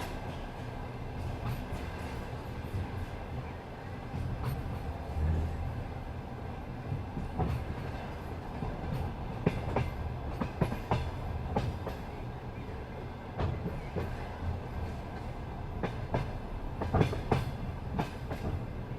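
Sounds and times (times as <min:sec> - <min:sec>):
train wheels rumbling on rails: 0:00.0 - 0:18.9
wheels clicking on rail joints: 0:06.9 - 0:18.9.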